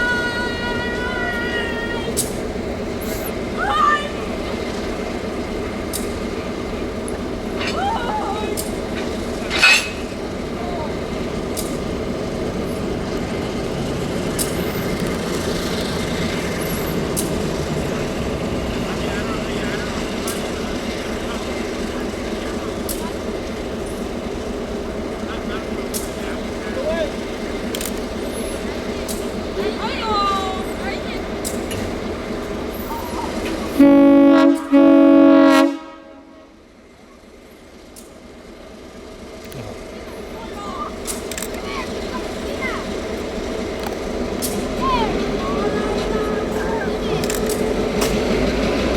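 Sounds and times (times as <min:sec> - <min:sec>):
train rumbling on rails: 0:00.0 - 0:48.9
sharp clicks: 0:27.7 - 0:28.1, 0:41.0 - 0:41.6
locomotive horn blasts: 0:33.7 - 0:36.6.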